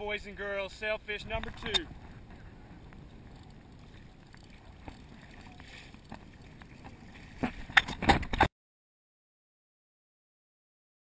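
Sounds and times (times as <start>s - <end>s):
water lapping against kayak hull: 1.2s - 8.5s.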